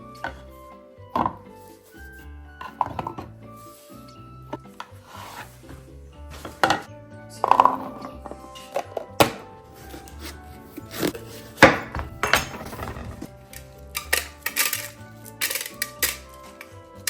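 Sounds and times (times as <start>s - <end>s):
background music: 0.0s - 17.0s
containers clinking and knocking: 6.4s - 17.0s.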